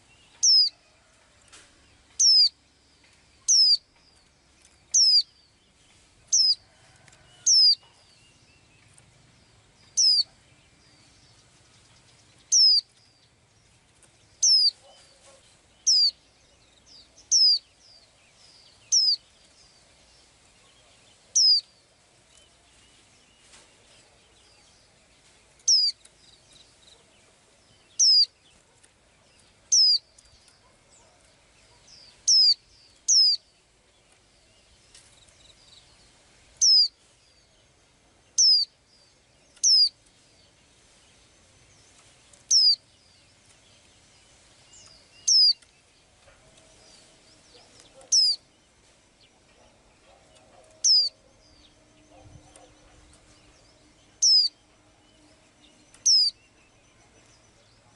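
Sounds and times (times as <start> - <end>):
small bird short high calls: 0.4 - 0.8, 2.2 - 2.6, 3.4 - 3.8, 4.9 - 5.3, 7.4 - 7.8, 10.0 - 10.3, 12.5 - 12.9, 14.4 - 16.2, 17.3 - 17.6, 18.9 - 19.2, 21.3 - 21.7, 25.7 - 26.0, 28.0 - 28.4, 29.7 - 30.1, 32.0 - 33.4, 36.6 - 37.0, 38.4 - 38.7, 39.6 - 40.0, 42.5 - 42.8, 45.2 - 45.6, 47.0 - 48.4, 50.3 - 51.2, 54.2 - 54.6, 56.0 - 56.4.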